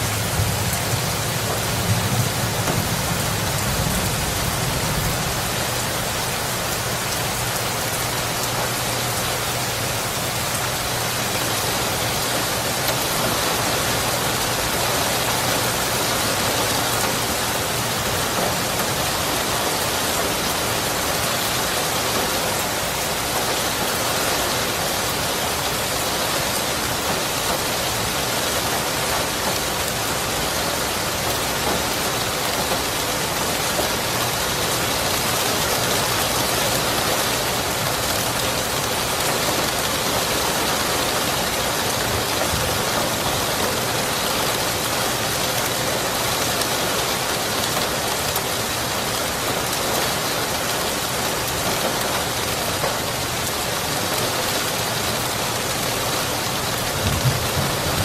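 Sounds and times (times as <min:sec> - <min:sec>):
heavy rain on surfaces: 0:00.0 - 0:58.0
low rumble of thunder: 0:00.1 - 0:06.3, 0:56.9 - 0:58.0.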